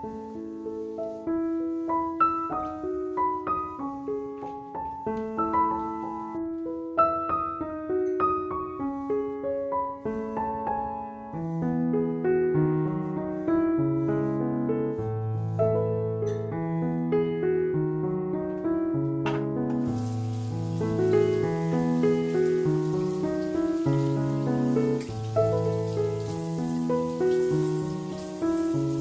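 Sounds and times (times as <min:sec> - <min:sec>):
gentle piano music: 0:00.0 - 0:29.0.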